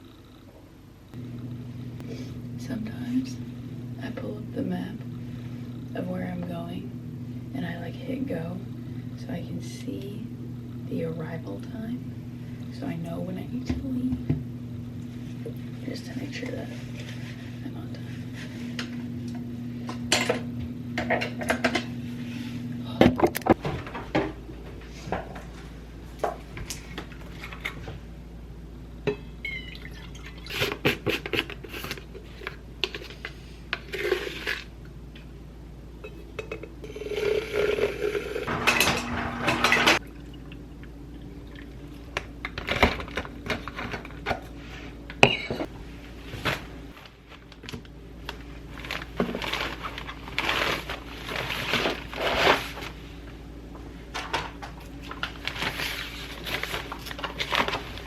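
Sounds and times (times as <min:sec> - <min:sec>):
dishes and utensils clattering: 0:36.0 - 0:36.8, 0:38.5 - 0:40.0.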